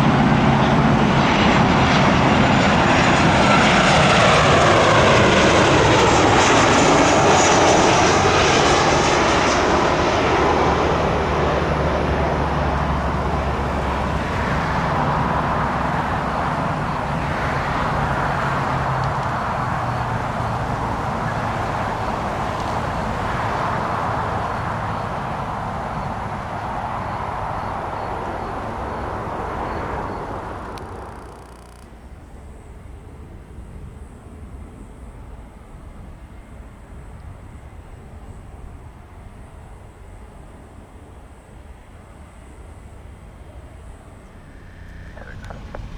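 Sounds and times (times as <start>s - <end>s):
jet airliner passing: 0.0s - 32.0s, 41.7s - 45.9s.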